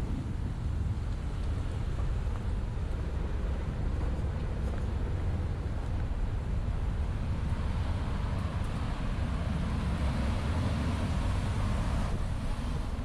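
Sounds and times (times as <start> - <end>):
outdoor noise hiss: 0.0 - 13.0
wind buffeting microphone: 0.0 - 13.0.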